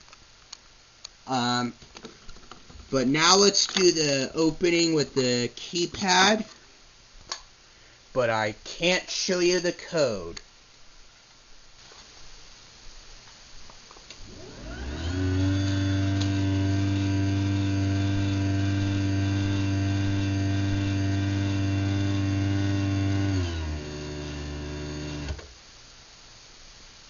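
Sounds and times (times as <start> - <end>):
garage door opener motor hum: 14.2 - 25.5.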